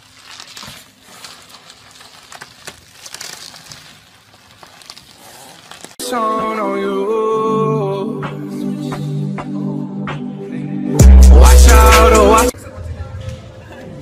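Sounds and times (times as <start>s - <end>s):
bubble wrap crinkling: 0.0s - 6.0s
music with singing: 6.0s - 14.0s.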